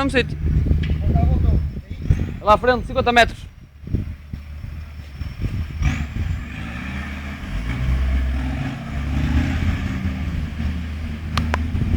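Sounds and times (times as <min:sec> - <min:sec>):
vehicle engine running: 0:00.0 - 0:11.9.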